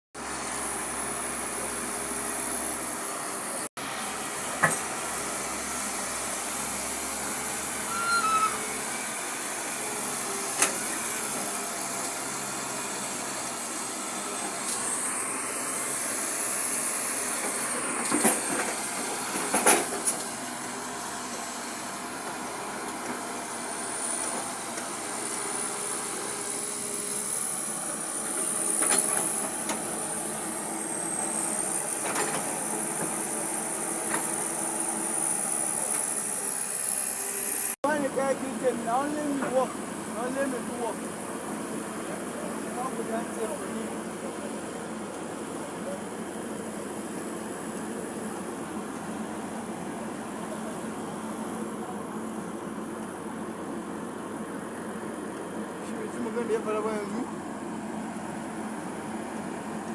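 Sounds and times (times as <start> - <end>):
excavator running: 0.2 - 59.9
faint high whine: 7.7 - 8.8.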